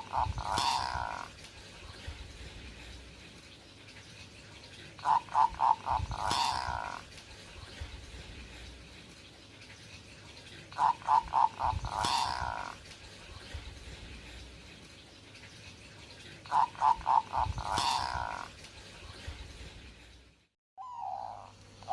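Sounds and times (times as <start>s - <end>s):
dove cooing: 0.0s - 1.4s, 5.0s - 7.1s, 10.8s - 12.8s, 16.5s - 18.5s, 20.8s - 21.9s.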